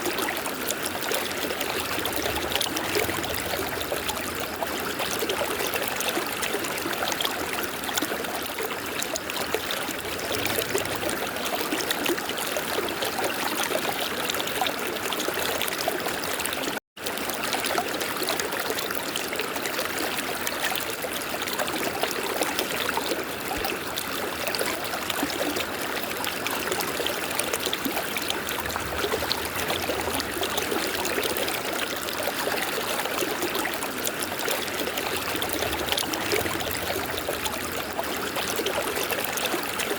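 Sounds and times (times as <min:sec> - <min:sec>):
river water rushing: 0:26.6 - 0:39.9.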